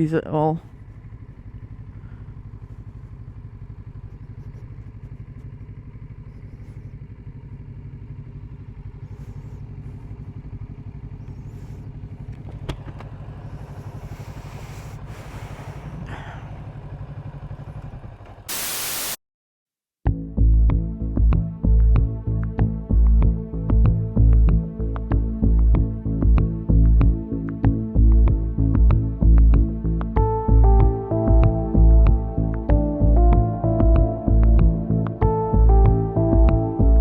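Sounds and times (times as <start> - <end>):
motorcycle engine running: 0.0 - 18.5, 22.9 - 37.0
loud hiss: 18.5 - 19.2.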